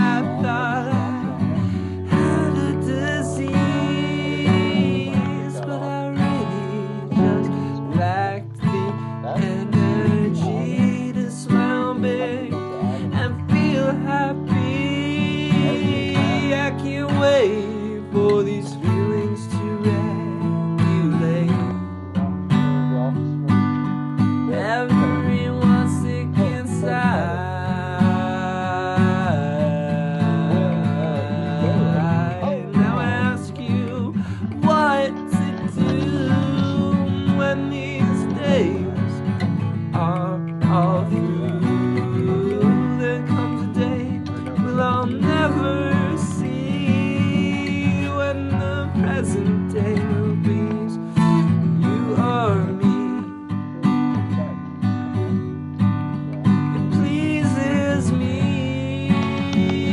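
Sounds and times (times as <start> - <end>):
strummed acoustic guitar: 0.0 - 59.9.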